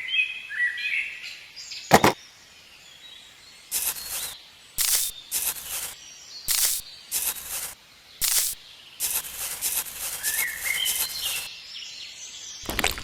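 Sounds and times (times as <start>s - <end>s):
short hissing scrapes: 3.7s - 11.5s
small bird chirping: 3.7s - 11.5s.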